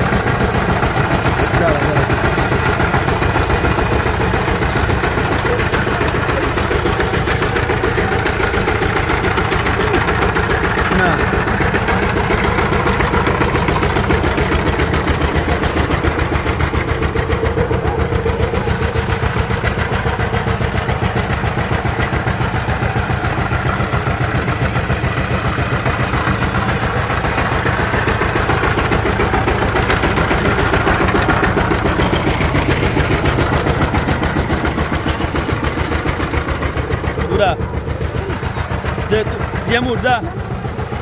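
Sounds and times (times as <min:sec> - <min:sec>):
diesel engine idling chugging: 0:00.0 - 0:41.0.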